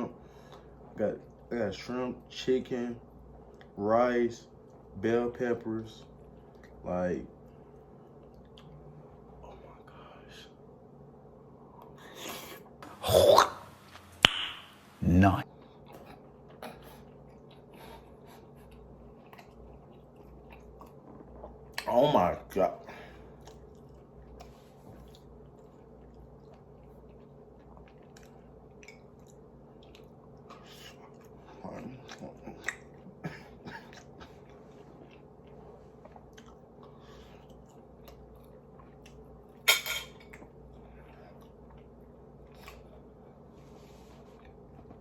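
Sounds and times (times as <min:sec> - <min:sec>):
sharp loud smack: 0:14.2 - 0:14.7
wet chewing mouth clicks: 0:15.7 - 0:21.9, 0:23.4 - 0:33.1, 0:33.9 - 0:39.2.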